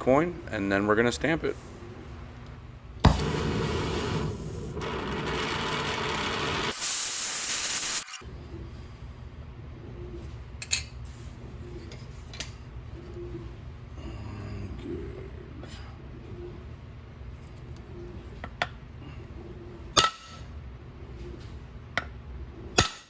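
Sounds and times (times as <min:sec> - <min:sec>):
gas torch hissing: 0:03.1 - 0:08.2.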